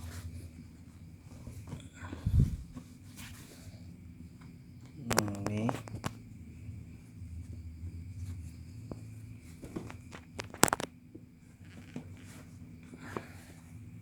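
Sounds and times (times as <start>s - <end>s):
cloth rustling: 0.0s - 3.8s, 7.4s - 13.8s
low steady hum: 0.0s - 14.0s
crackle of clicks: 4.8s - 6.2s, 9.8s - 11.0s
small knocks: 8.9s - 10.9s.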